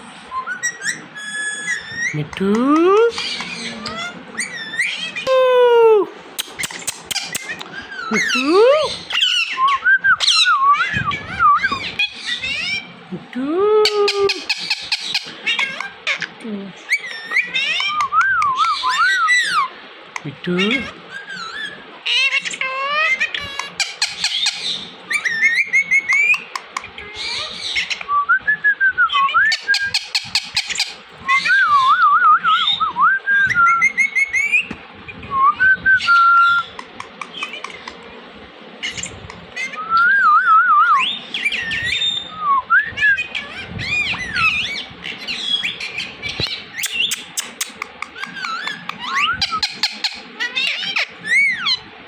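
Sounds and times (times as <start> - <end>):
parrot whistling and squawking: 0.3 - 13.0, 13.8 - 16.3, 16.9 - 19.8, 20.6 - 38.1, 38.8 - 51.9
parrot clicking: 6.4 - 7.7, 46.4 - 49.0.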